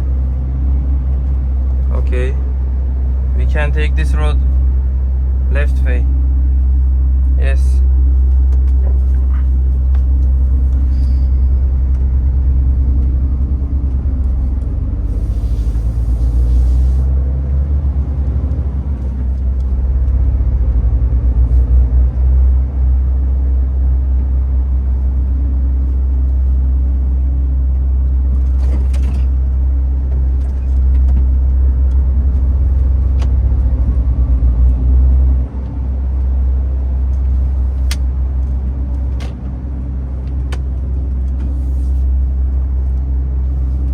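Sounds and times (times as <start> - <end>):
truck diesel engine droning: 0.0 - 43.9
air hiss: 15.1 - 17.1.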